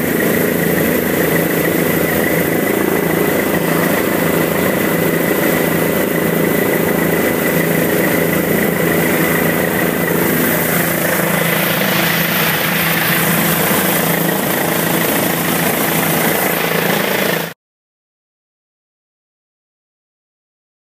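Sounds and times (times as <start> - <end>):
helicopter engine and rotor: 0.0 - 17.6.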